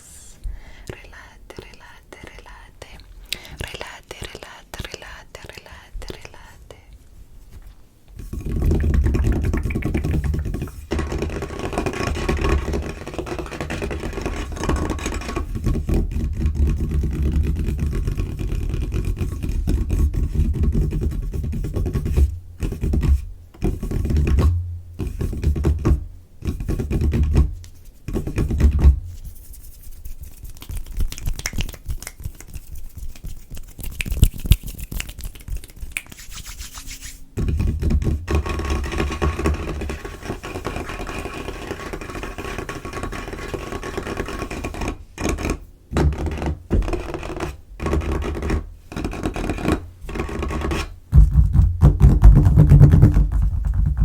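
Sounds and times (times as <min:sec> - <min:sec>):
scratching and rubbing on a surface: 0:07.6 - 0:51.6
fingertips tapping on a tabletop: 0:08.2 - 0:27.5, 0:37.4 - 0:54.0.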